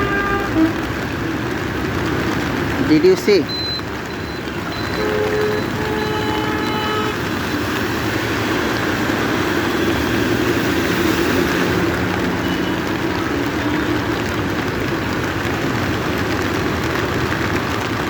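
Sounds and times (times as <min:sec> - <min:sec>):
vehicle horn steady note: 0:00.0 - 0:00.7, 0:05.0 - 0:07.2
heavy rain: 0:00.0 - 0:18.0
road traffic: 0:00.0 - 0:18.0.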